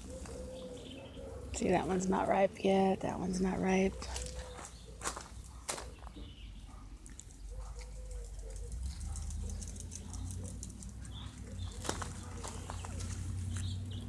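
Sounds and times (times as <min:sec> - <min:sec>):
faint bird calls: 0:00.0 - 0:01.6
leaves rustling and ticking: 0:03.8 - 0:06.0, 0:07.0 - 0:13.9.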